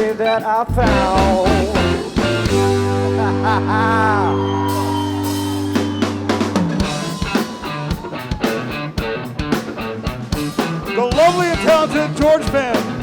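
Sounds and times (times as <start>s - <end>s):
rock band sustained chord: 0.7s - 8.7s
drum kit snare and cymbal hits: 0.7s - 13.0s.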